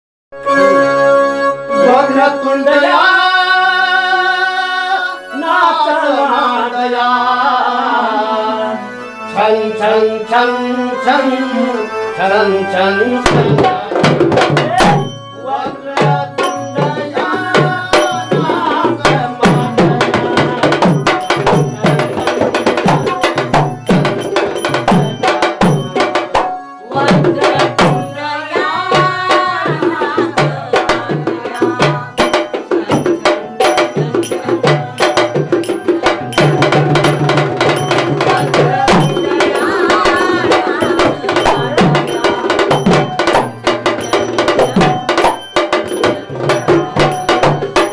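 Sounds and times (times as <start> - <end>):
folk melody: 0.4 - 47.9
hand drum rhythm: 13.2 - 47.9.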